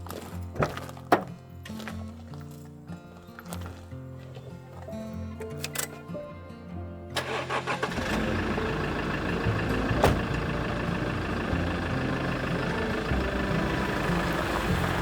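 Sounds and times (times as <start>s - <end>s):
vehicle engine starting and idling: 7.2s - 15.0s.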